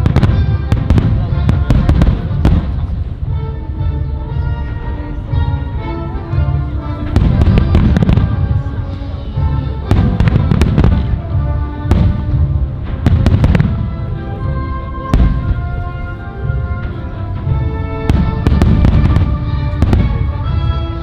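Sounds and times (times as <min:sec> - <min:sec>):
fireworks bangs and crackle: 0:00.0 - 0:03.2, 0:06.6 - 0:08.6, 0:09.8 - 0:14.5, 0:16.8 - 0:20.6
music with sustained notes: 0:00.0 - 0:21.0.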